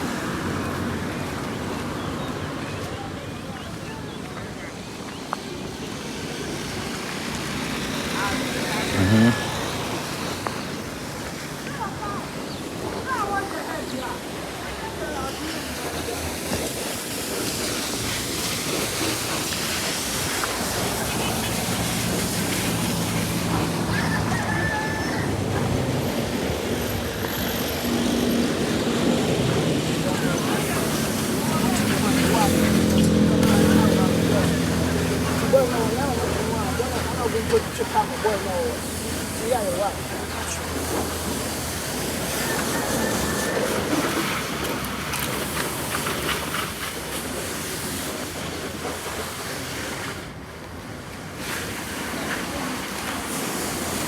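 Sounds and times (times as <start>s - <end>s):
water spraying: 4.8s - 54.0s
pump motor hum: 5.6s - 11.6s.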